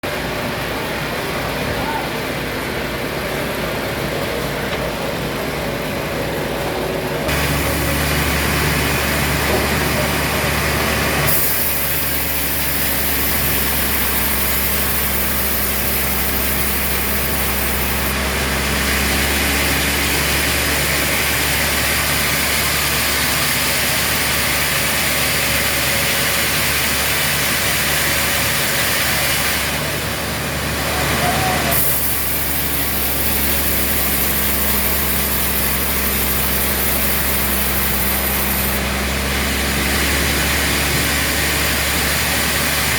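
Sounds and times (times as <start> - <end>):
sawmill engine hum: 0.0 - 42.9
machinery hiss: 7.3 - 18.2, 31.6 - 38.8.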